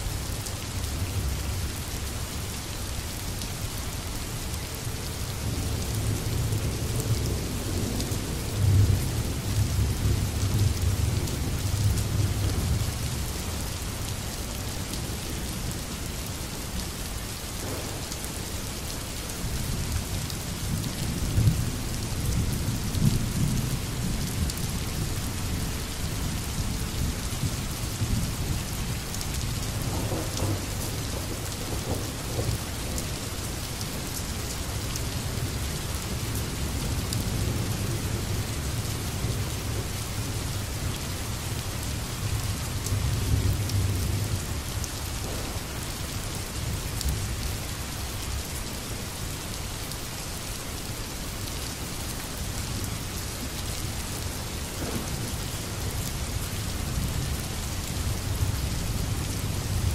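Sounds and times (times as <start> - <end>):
steady rain falling: 0.0 - 59.9
thunder rumbling: 17.6 - 18.2, 29.8 - 33.0, 45.2 - 46.8, 54.7 - 55.9.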